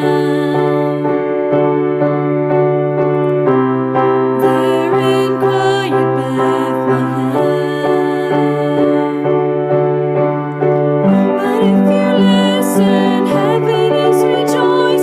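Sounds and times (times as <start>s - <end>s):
solo voice singing with vibrato: 0.0s - 1.4s, 4.4s - 9.5s, 11.1s - 15.0s
piano accompaniment: 0.0s - 15.0s.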